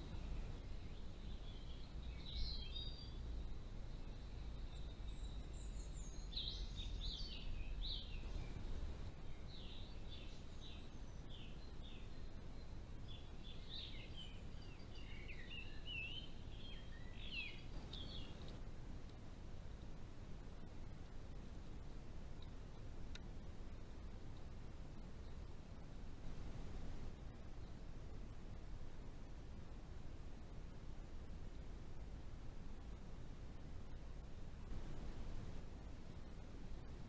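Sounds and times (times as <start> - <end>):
small birds chirping: 0.0 - 18.6
low background rumble: 0.0 - 37.0.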